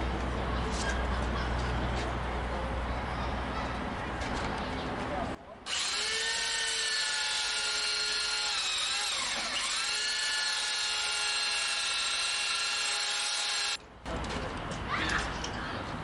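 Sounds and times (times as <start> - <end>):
power tool motor whine: 5.7 - 13.8.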